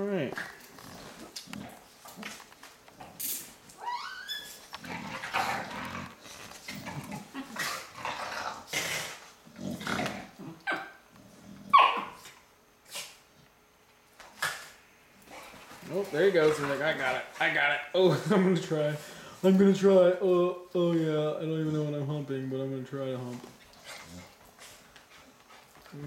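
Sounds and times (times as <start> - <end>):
dogs growling: 0.3 - 3.2, 4.6 - 12.3, 23.4 - 25.9
dogs barking: 11.7 - 12.2.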